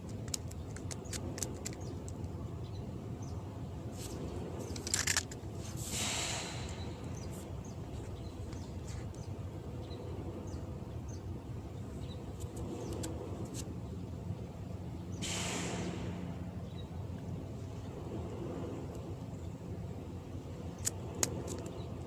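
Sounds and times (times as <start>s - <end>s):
sharp clicks: 0.0s - 2.4s
low rumble of distant engines: 0.0s - 22.0s
brief hiss: 5.6s - 7.2s, 15.2s - 16.4s.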